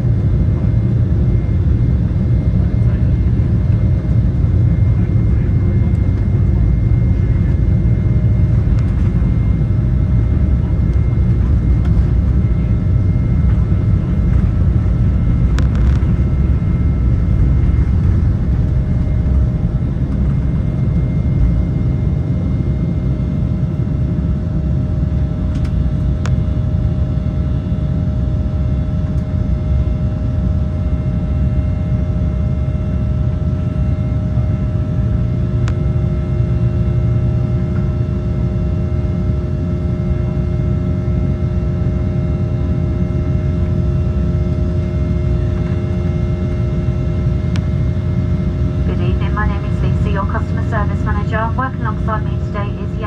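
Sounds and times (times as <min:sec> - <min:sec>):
jet engines rumbling and whining: 0:00.0 - 0:53.0.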